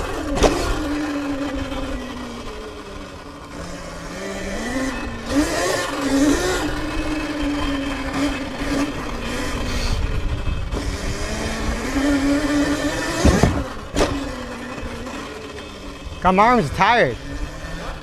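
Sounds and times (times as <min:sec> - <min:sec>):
electric dirt bike motor whining: 0:00.0 - 0:18.0
sharp knock: 0:13.2 - 0:13.8.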